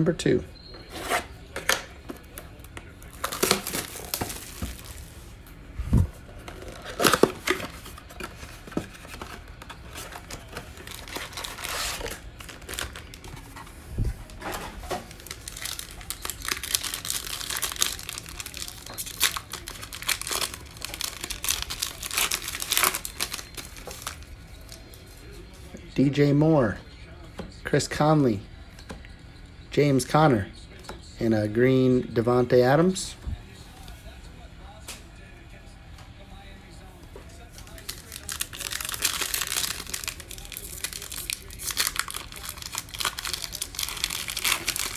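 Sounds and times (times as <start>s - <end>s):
packaging tearing: 0.8s - 5.3s, 6.2s - 24.9s, 37.6s - 44.9s
card wrappers crinkling: 0.8s - 25.7s, 37.2s - 44.9s.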